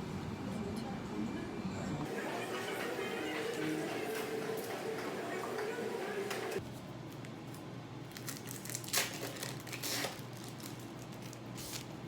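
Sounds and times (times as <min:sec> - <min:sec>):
crinkling rustles: 0:08.1 - 0:12.0.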